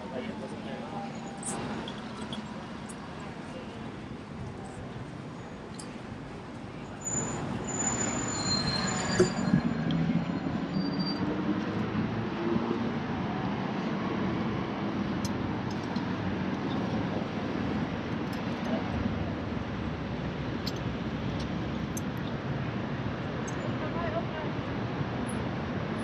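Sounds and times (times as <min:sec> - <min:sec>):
city street traffic: 0:00.0 - 0:26.0
thin high-pitched squeals: 0:07.0 - 0:09.8.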